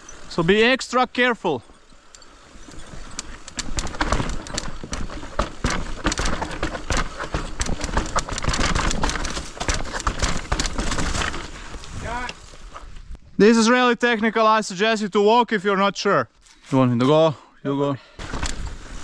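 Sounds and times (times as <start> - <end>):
mountain bike rattling over rocks: 0.0 - 12.9, 18.2 - 19.0.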